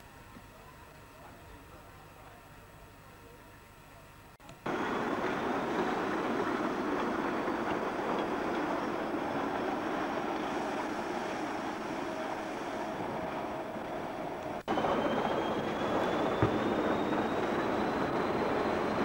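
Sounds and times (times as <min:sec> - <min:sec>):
electric railcar running: 0:04.6 - 0:19.0
faint rising whine: 0:04.7 - 0:19.0.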